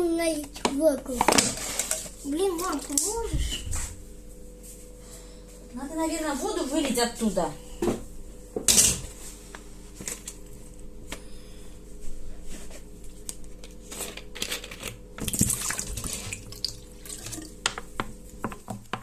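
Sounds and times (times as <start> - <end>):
water pouring into sink: 15.2 - 17.5.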